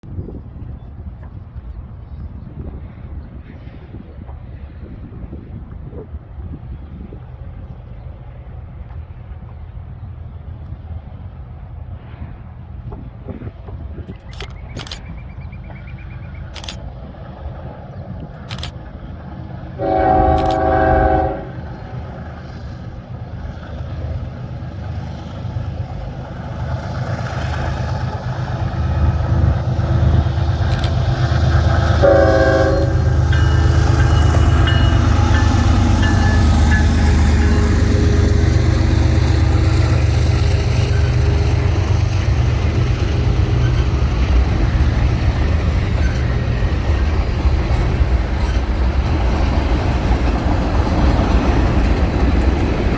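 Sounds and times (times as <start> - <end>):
train engine rumble and rolling: 0.0 - 52.9
train horn: 19.8 - 22.0, 31.6 - 44.7.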